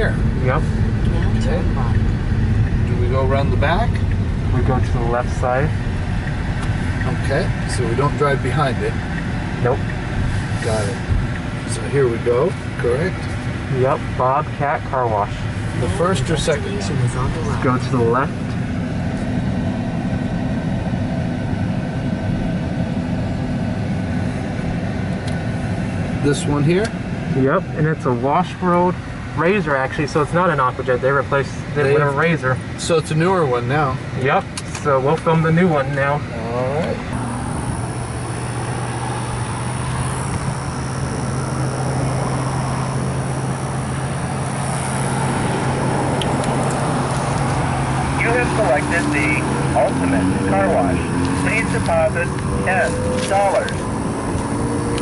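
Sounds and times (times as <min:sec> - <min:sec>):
climate control fan: 0:00.0 - 0:55.0
low hum: 0:00.0 - 0:55.0
tyre and road noise: 0:00.0 - 0:55.0
rushing noise: 0:37.0 - 0:55.0.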